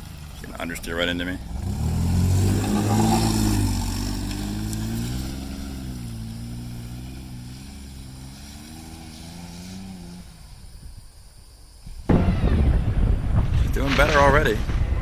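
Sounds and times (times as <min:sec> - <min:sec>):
car engine revving: 0:00.2 - 0:10.6.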